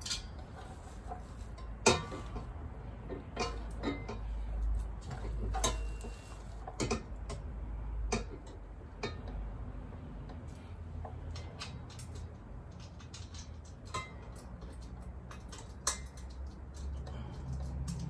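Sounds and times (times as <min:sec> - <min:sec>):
metallic clicks and knocks: 0:00.0 - 0:09.4, 0:10.2 - 0:18.0.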